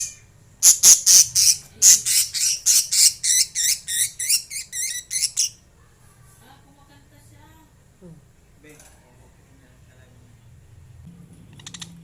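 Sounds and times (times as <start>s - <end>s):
lovebirds chirping: 0.0s - 5.7s.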